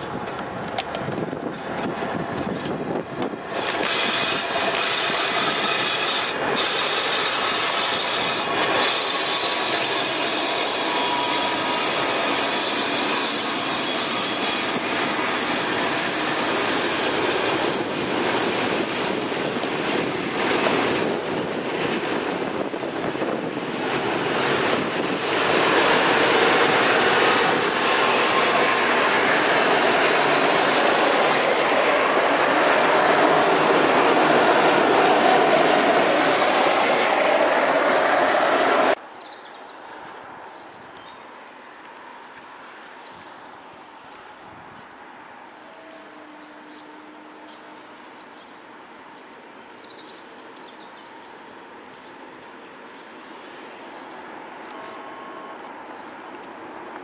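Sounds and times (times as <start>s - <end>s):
train wheels rushing on rails: 0.0s - 39.0s
high-pitched wheel squeal: 3.5s - 17.9s.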